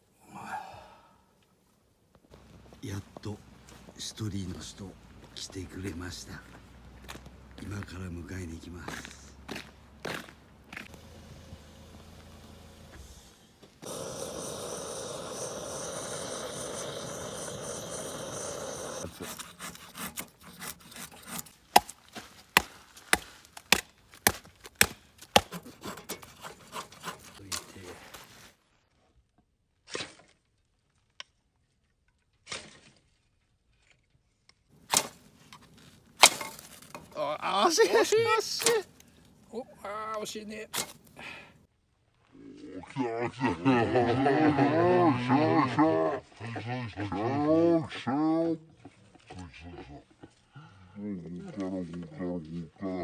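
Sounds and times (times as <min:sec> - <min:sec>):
steady hiss: 0:12.0 - 0:19.1
wood being chopped: 0:19.0 - 0:28.3, 0:34.8 - 0:37.3, 0:38.5 - 0:39.1, 0:40.7 - 0:41.4.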